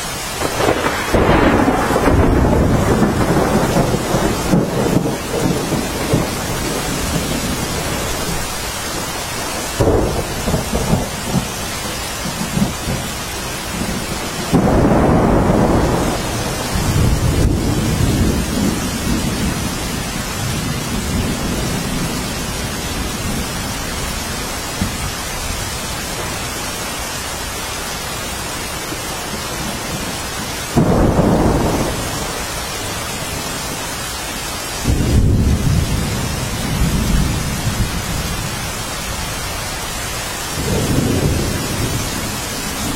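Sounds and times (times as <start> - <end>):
steady rain hissing: 0.0 - 42.9
thunder claps and rumbles: 0.4 - 26.7, 29.3 - 33.9, 34.8 - 39.3, 40.4 - 42.9.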